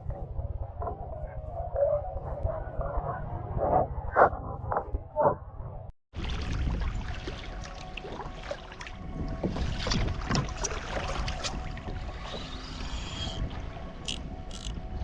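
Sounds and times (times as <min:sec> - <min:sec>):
water lapping against a hull: 0:06.1 - 0:15.0.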